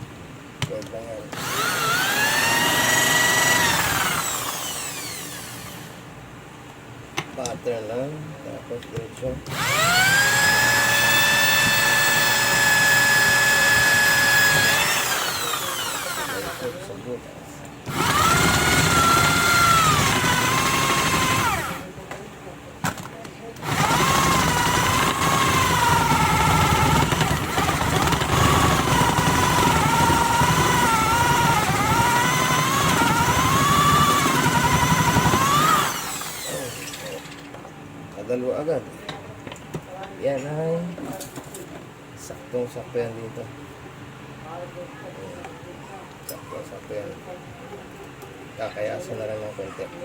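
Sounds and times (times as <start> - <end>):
electric power drill whining: 1.3 - 6.0, 9.5 - 16.9, 17.9 - 21.9, 23.6 - 37.4.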